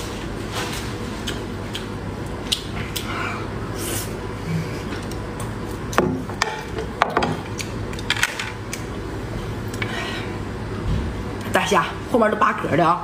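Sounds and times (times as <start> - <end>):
steady low hum: 0.0 - 13.0
person chewing food: 1.1 - 3.4.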